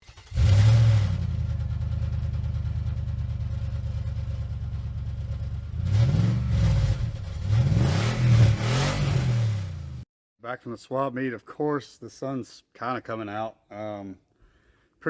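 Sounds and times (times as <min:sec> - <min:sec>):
car engine revving: 0:00.0 - 0:10.0
car engine starting and idling: 0:00.0 - 0:10.0.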